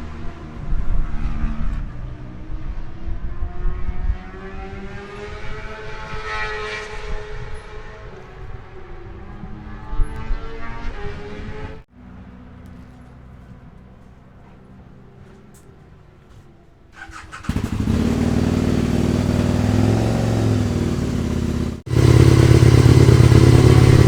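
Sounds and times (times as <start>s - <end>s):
racing motorcycle engine running: 17.4s - 24.0s
heavy low rumble: 17.8s - 24.0s.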